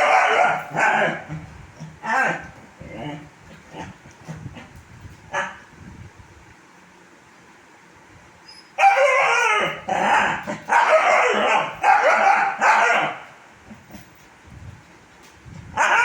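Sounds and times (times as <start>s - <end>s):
puppy barking: 0.0s - 1.4s, 8.8s - 13.3s, 15.8s - 16.0s.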